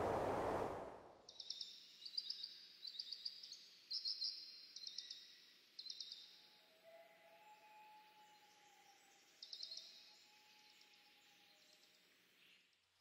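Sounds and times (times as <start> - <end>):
steady rushing noise: 0.0 - 1.1.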